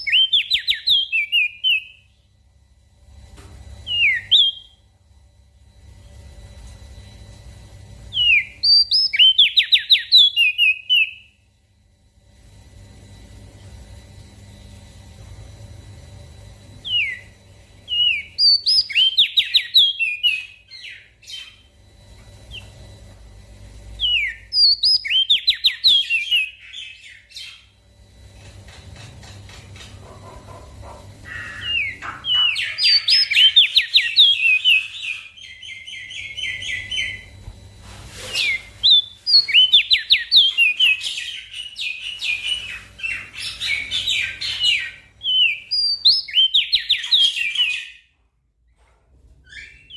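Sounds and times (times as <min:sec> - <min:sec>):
songbird chirps and trills: 0:00.0 - 0:02.4, 0:16.8 - 0:22.8, 0:28.6 - 0:37.4.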